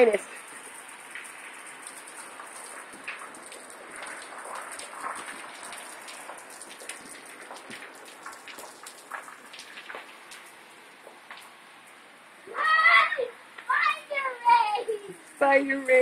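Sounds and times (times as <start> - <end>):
water drops dripping: 0.0 - 12.0
soft steady hiss: 0.0 - 16.0.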